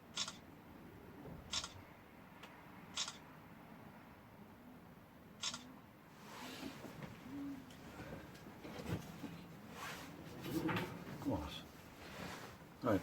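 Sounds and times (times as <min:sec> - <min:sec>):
camera shutter clicking: 0:00.2 - 0:00.4, 0:03.0 - 0:03.2, 0:05.4 - 0:05.7.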